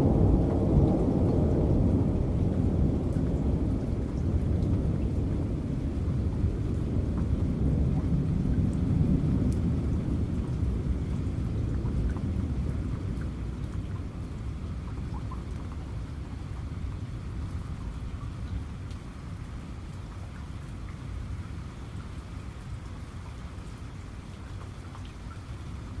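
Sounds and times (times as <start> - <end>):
rolling thunder: 0.0 - 15.6
steady rain: 0.0 - 26.0.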